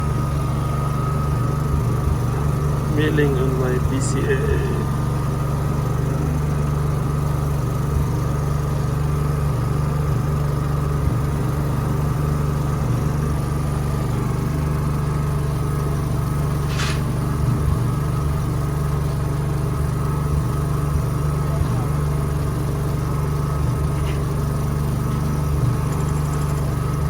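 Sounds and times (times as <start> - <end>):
generator engine running: 0.0 - 27.0
brief hiss: 16.6 - 17.1.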